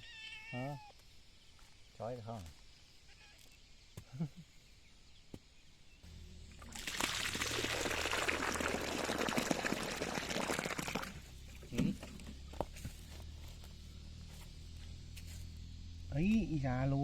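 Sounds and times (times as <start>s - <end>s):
low hum: 6.0s - 8.6s
water running: 6.4s - 12.3s.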